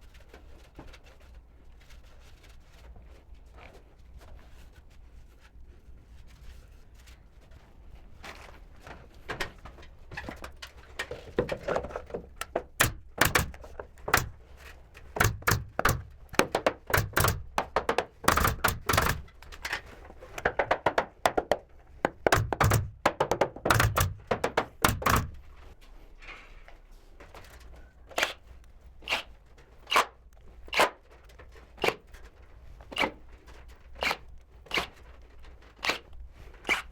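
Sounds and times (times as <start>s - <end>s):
knocks on wooden boards: 11.4s - 14.5s, 15.1s - 19.3s, 20.3s - 25.6s.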